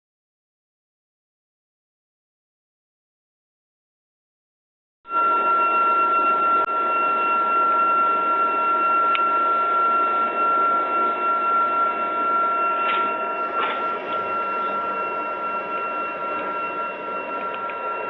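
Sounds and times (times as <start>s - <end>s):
fireplace fan whirring: 5.6s - 18.0s.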